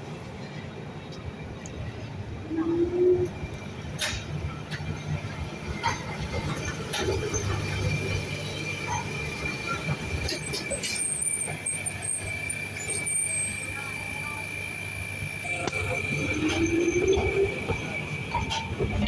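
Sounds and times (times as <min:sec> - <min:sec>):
tram rumbling on rails: 0:00.0 - 0:19.0
high-pitched wheel squeal: 0:08.8 - 0:14.5, 0:15.4 - 0:19.0.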